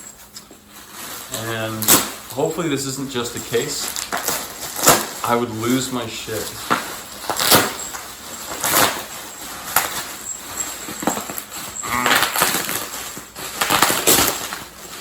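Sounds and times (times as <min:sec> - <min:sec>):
plastic wrap crinkling: 0:00.0 - 0:15.0.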